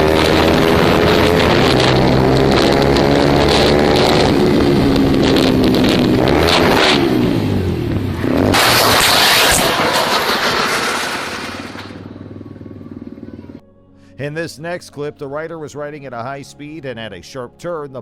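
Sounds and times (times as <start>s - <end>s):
loud rushing noise: 0.0s - 13.1s
motorcycle engine revving: 0.0s - 13.6s.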